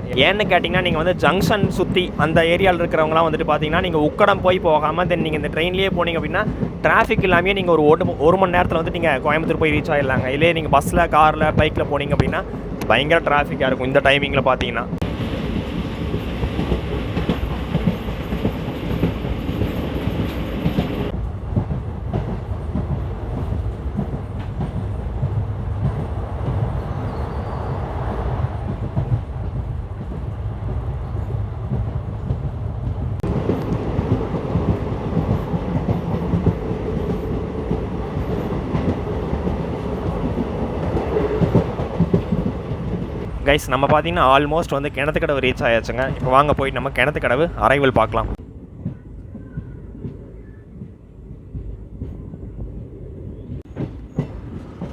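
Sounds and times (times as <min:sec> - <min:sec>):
coach rumble: 0:00.0 - 0:15.0, 0:43.2 - 0:48.4
train wheels clattering over rail joints: 0:00.2 - 0:13.7, 0:15.0 - 0:26.8.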